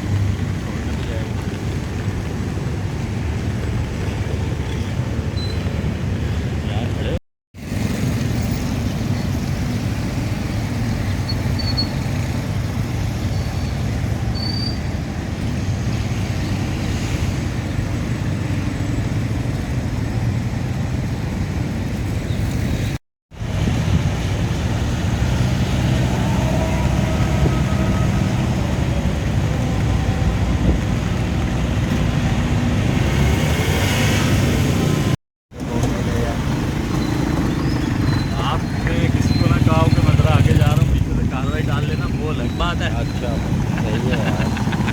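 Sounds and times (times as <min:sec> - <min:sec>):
road traffic: 0:00.0 - 0:44.9.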